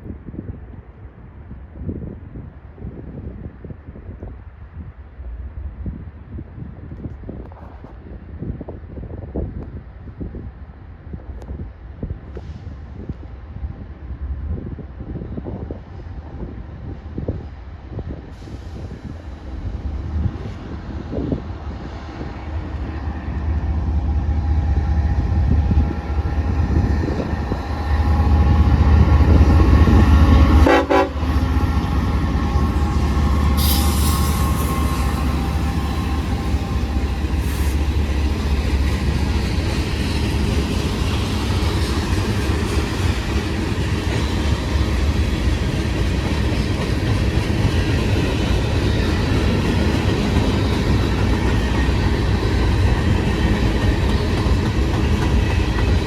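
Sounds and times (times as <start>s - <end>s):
diesel locomotive drone: 3.5s - 56.0s
train cars passing: 15.2s - 56.0s
train horn: 26.6s - 38.1s.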